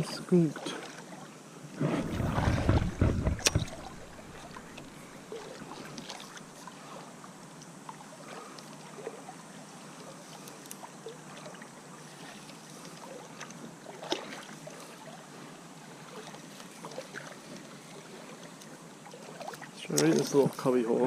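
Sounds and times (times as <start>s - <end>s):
faint water sounds: 0.0s - 21.0s
knocks against canoe hull: 1.9s - 4.9s.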